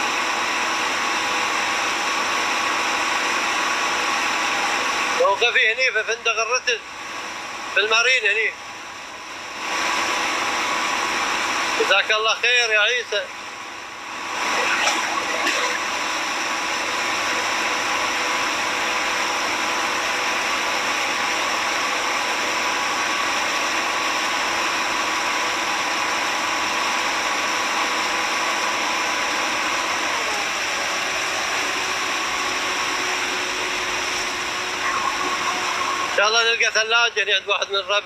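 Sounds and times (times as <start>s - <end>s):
motor humming: 14.1s - 17.4s, 29.7s - 36.2s.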